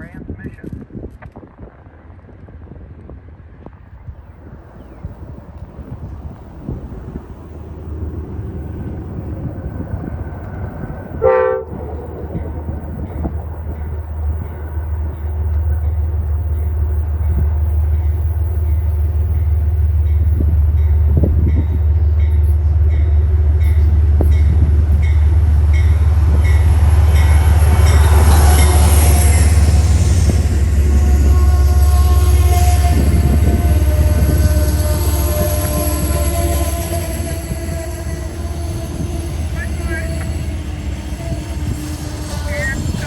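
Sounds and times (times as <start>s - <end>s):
diesel train rumbling: 0.0s - 43.0s
train horn toot: 9.8s - 13.4s, 25.8s - 43.0s.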